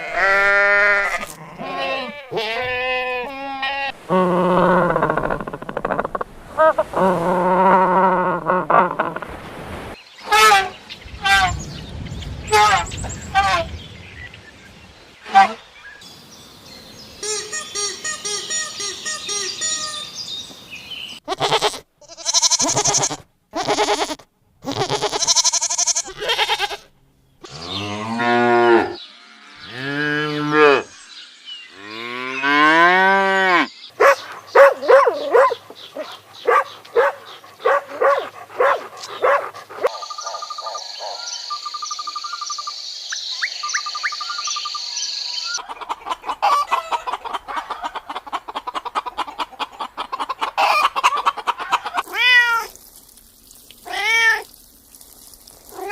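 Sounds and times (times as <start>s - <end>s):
other farm animal calls: 21.2s - 31.0s, 45.5s - 52.7s
cows mooing: 31.7s - 33.7s.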